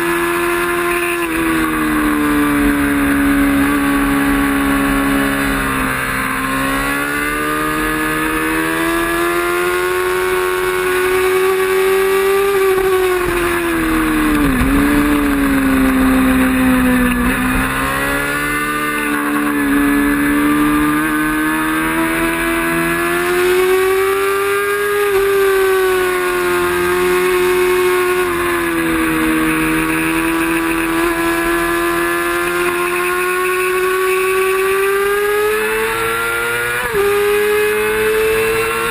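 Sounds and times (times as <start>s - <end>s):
racing motorcycle engine: 0.0s - 38.9s
wind rush: 12.6s - 18.2s.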